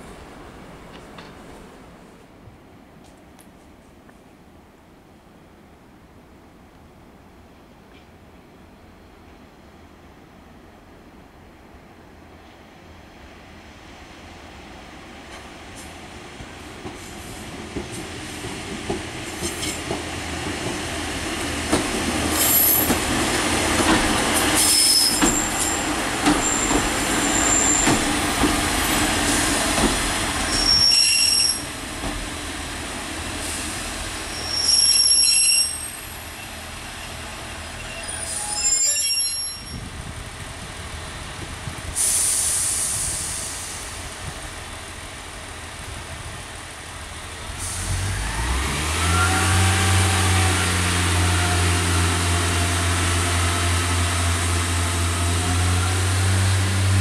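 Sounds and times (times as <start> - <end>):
train engine and wheel rumble: 0.0 - 57.0
high-pitched brake squeals: 24.6 - 28.0, 30.5 - 31.7, 34.3 - 39.9, 49.0 - 49.7.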